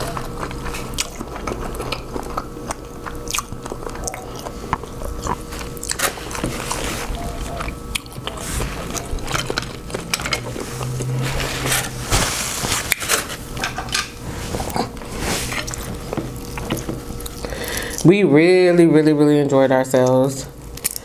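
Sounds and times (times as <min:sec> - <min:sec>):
wet chewing and smacking: 0:00.0 - 0:12.0, 0:13.6 - 0:18.1.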